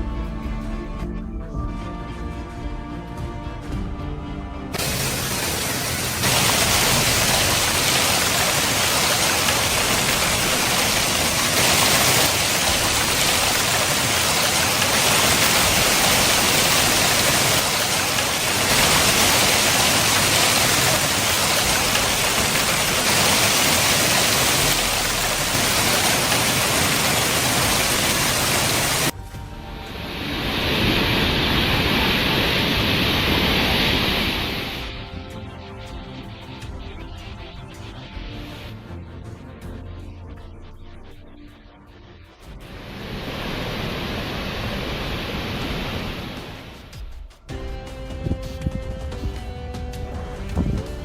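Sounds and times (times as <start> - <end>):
rushing water: 4.8 - 29.2, 29.8 - 35.0, 42.6 - 47.0.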